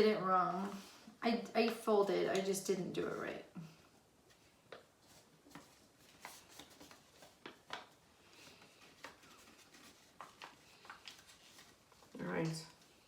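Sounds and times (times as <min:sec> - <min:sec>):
paper rustling and crinkling: 0:04.2 - 0:13.0.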